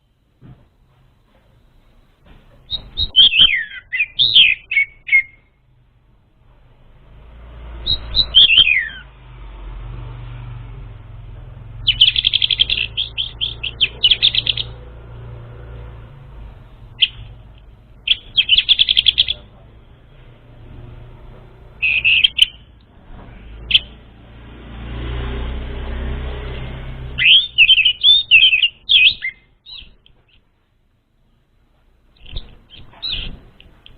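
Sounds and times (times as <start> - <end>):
steady low hum: 0.0 - 27.2
songbird chirping trills: 2.6 - 5.6, 7.4 - 9.2, 11.6 - 20.3, 21.6 - 22.8, 23.5 - 24.1, 26.4 - 30.5, 32.1 - 33.7.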